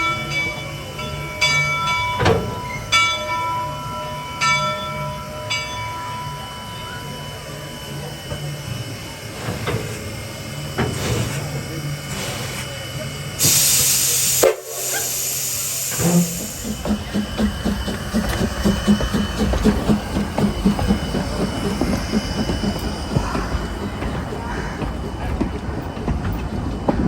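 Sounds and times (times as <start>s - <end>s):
steam locomotive venting steam: 3.6s - 27.0s
locomotive exhaust chuffs: 6.8s - 27.0s.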